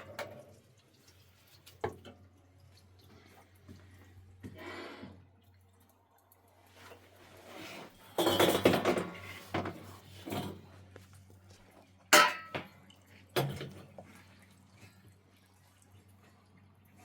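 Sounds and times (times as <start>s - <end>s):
kitchenware clattering: 8.1s - 10.6s, 12.2s - 12.7s
kitchenware knocks and clinks: 8.2s - 10.6s, 12.2s - 12.7s.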